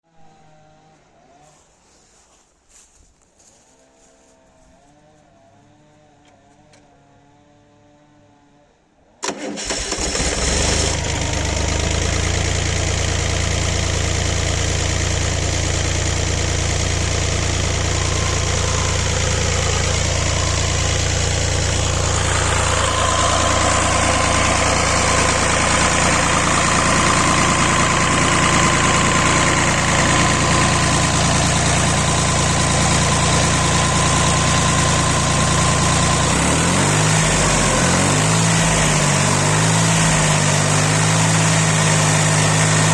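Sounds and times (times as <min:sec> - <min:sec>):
diesel engine starting and running: 0:09.2 - 0:42.9
steady whine: 0:14.8 - 0:40.7.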